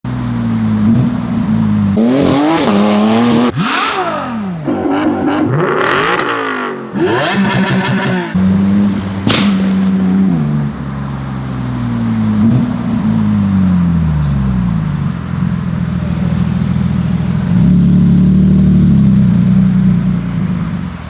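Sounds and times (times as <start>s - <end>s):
sports car engine revving: 0.1s - 21.0s
car engine idling: 7.0s - 21.0s.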